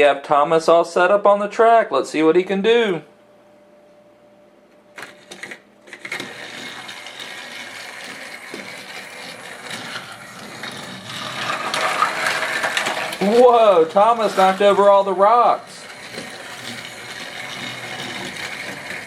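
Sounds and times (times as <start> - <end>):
toy train motor whirring: 5.0 - 19.0
toy train wheels rattling: 5.0 - 19.0.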